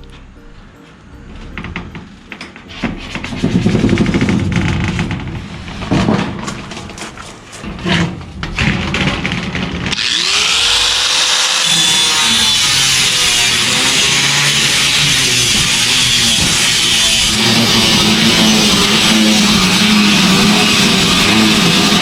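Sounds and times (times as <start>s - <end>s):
power tool bursts: 9.9s - 22.0s.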